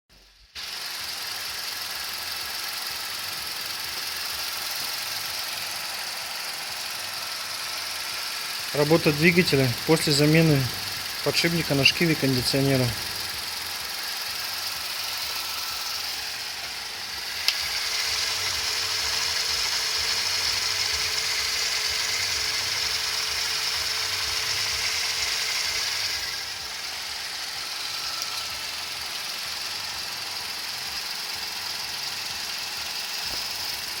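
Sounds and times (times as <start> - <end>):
car engine idling: 0.6 - 34.0.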